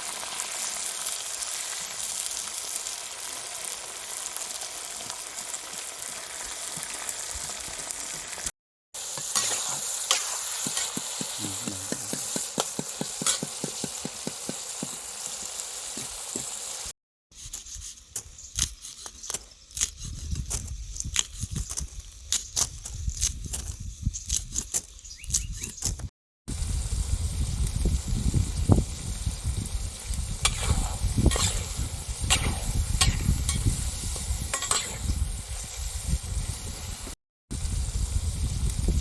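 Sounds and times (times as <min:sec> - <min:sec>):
insects sizzling in a pan: 0:00.0 - 0:24.4, 0:26.5 - 0:39.0
utensil scraping a pan: 0:09.1 - 0:16.5, 0:30.4 - 0:33.7, 0:34.5 - 0:35.1.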